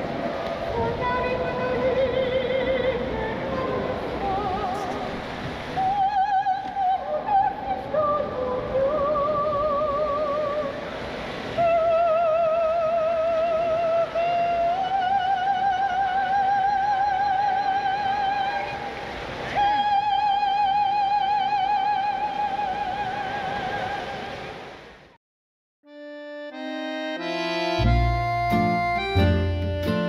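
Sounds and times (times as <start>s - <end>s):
person singing opera: 0.7s - 5.2s, 5.8s - 10.8s, 11.6s - 18.8s, 19.5s - 24.4s.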